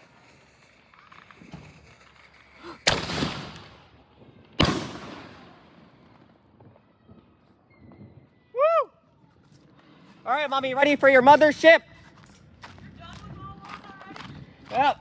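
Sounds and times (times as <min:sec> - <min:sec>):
firework booms with rumbling echo: 0:02.9 - 0:08.3.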